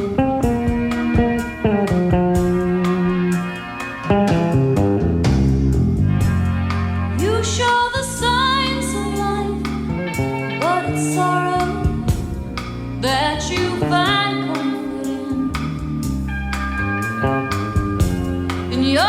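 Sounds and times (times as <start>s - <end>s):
live rock band playing: 0.0s - 19.0s
woman singing: 7.2s - 12.3s, 13.0s - 15.9s, 18.7s - 19.0s.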